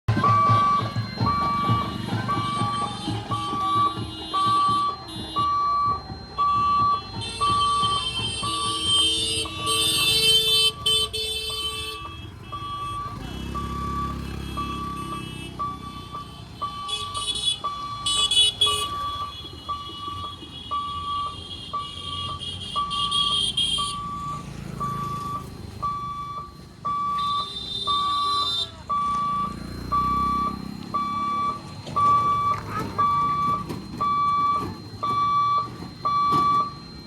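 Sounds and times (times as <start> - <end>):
low vehicle rumble: 0.1 - 21.2, 23.9 - 37.0
shrill horn blasts: 0.1 - 24.1
level crossing alarm beeping: 0.1 - 37.0.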